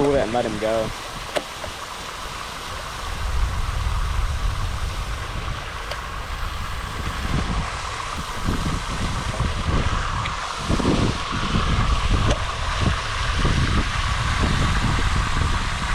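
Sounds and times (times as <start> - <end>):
background hiss: 0.0 - 11.4
wind buffeting microphone: 0.0 - 15.9.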